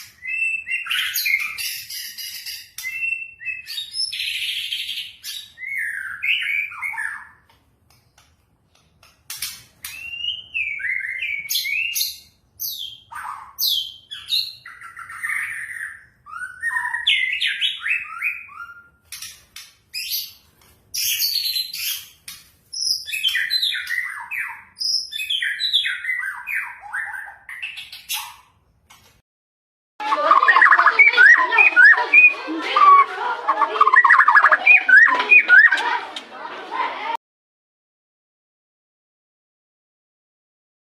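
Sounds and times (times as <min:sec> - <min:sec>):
songbird singing whistles and chirps: 0:00.0 - 0:07.5, 0:09.8 - 0:20.4, 0:21.0 - 0:28.5, 0:30.1 - 0:35.9.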